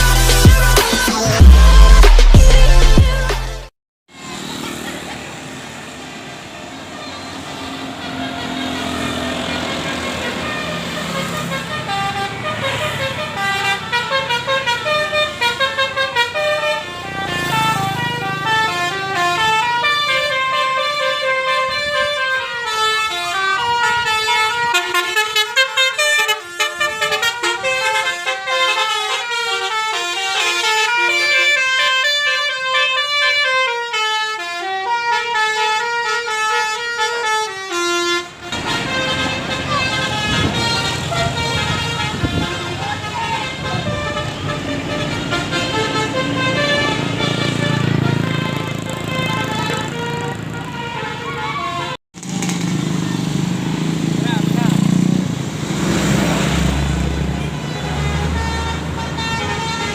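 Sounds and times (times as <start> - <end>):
musical bus horn: 0.0 - 3.7, 7.0 - 52.3, 56.2 - 59.9
vehicle noise: 4.1 - 59.9.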